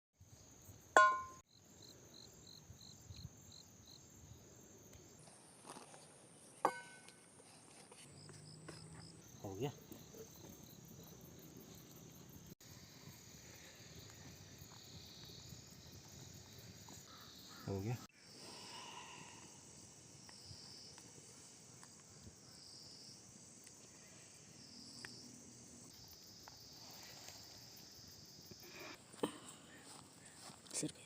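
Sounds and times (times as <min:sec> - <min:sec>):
insects chirping: 0:00.2 - 0:31.0
short sharp ringing: 0:01.0 - 0:01.4.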